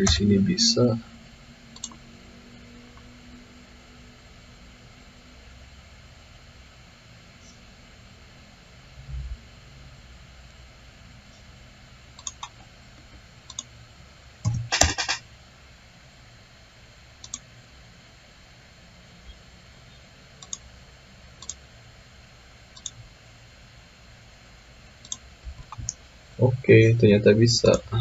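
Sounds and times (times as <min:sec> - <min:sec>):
computer mouse clicks: 0:01.8 - 0:02.0, 0:12.2 - 0:12.6, 0:13.5 - 0:13.7, 0:17.2 - 0:17.4, 0:20.4 - 0:20.6, 0:21.4 - 0:21.6, 0:22.8 - 0:23.0, 0:25.0 - 0:26.0.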